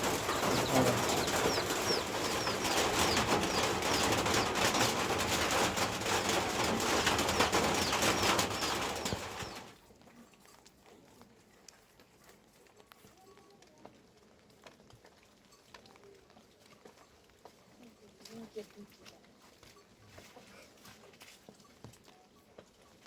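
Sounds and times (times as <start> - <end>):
small bird chirping: 0.0 - 9.7
steady rain: 0.0 - 9.7.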